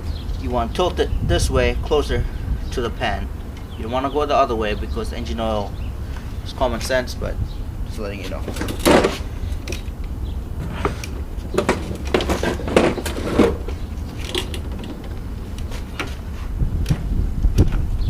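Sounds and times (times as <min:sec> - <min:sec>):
knocks clicks and creaks: 0:00.0 - 0:01.1, 0:08.1 - 0:17.9
steady low rumble: 0:00.0 - 0:18.0.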